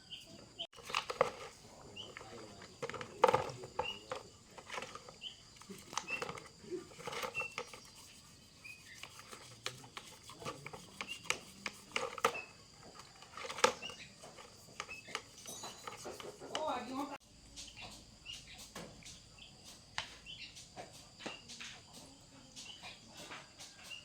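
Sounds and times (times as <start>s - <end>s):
high bird chirps: 17.5s - 21.8s.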